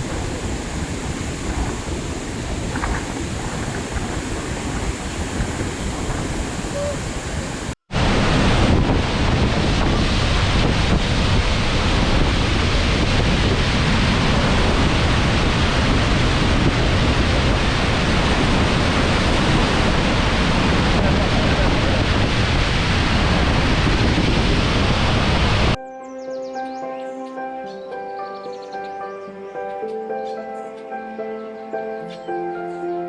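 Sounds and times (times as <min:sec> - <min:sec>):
waterfall roaring: 0:00.0 - 0:25.8
wind buffeting microphone: 0:00.0 - 0:25.8.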